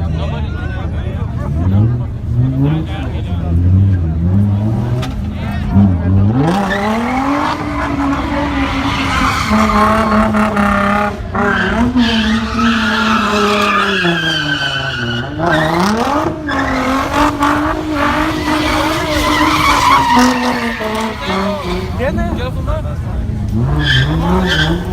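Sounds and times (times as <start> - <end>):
car engine at high revs: 1.0 - 24.9
tyres squealing: 6.4 - 22.6, 23.6 - 24.9.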